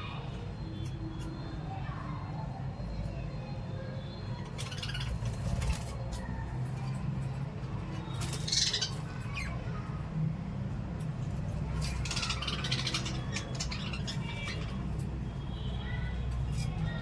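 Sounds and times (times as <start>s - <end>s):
parrots squawking: 4.6s - 5.5s, 8.3s - 9.6s, 11.8s - 15.0s.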